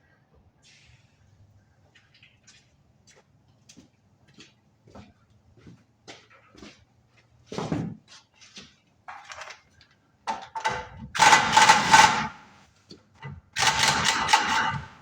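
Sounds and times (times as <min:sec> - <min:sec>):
tools and parts knocking: 0:10.3 - 0:12.3
pneumatic tool burst: 0:11.2 - 0:12.4, 0:13.6 - 0:15.0.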